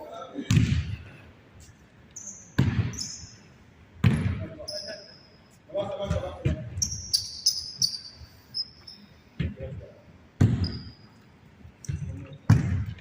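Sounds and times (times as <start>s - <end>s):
sneakers squeaking on court: 0.5s - 9.8s, 10.4s - 13.0s
basketball thudding on floor: 11.9s - 13.0s.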